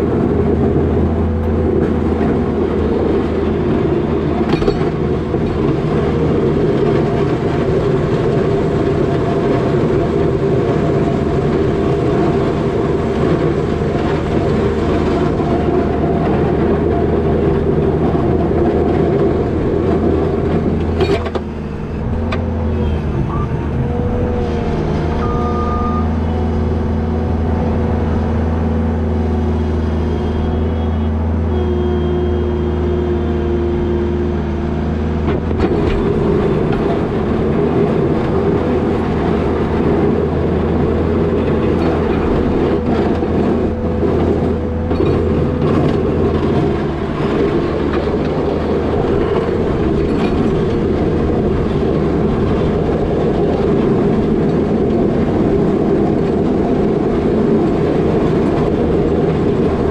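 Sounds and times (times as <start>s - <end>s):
rough rattling and clatter: 0.0s - 22.8s, 35.0s - 59.9s
diesel engine running: 0.0s - 59.9s.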